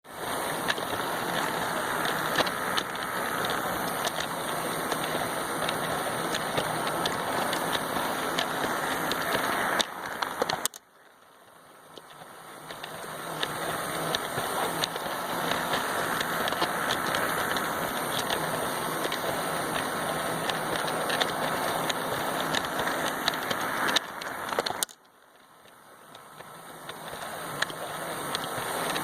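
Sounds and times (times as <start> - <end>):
scattered clicks: 0.1 - 29.0
toy train motor whirring: 0.1 - 29.0.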